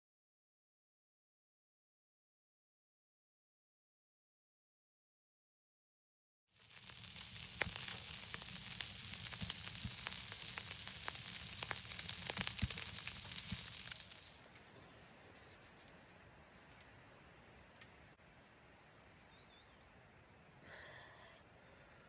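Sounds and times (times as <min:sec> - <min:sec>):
water spraying from shower head: 0:06.6 - 0:14.4
faint hiss: 0:06.6 - 0:22.0.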